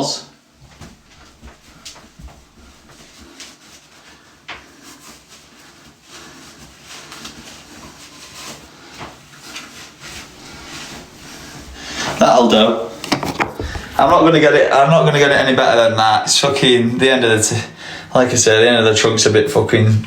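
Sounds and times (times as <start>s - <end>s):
faint scrubbing: 1.0s - 20.0s.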